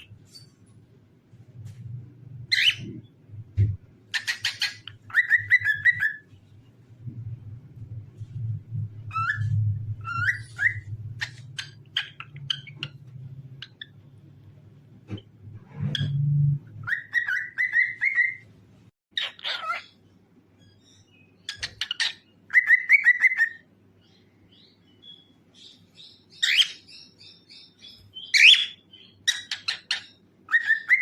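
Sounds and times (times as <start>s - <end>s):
low steady hum: 0.0s - 18.9s
cockatiel chirping and whistling: 2.5s - 3.0s, 4.1s - 6.3s, 9.0s - 12.9s, 16.8s - 18.4s, 19.2s - 19.9s, 20.6s - 23.6s, 26.3s - 31.0s.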